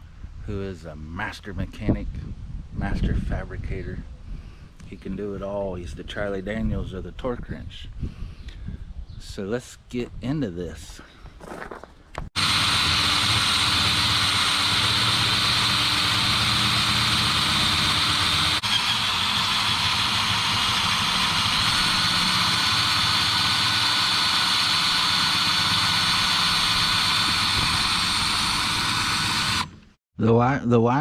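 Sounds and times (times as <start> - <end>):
machine whirring with high whine: 12.4 - 29.8.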